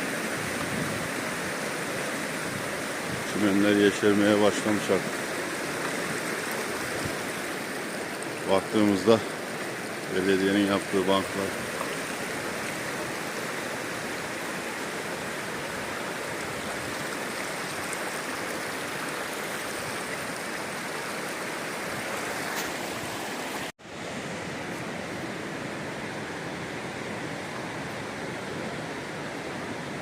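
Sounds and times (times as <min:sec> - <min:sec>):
waterfall rushing: 0:00.0 - 0:23.7.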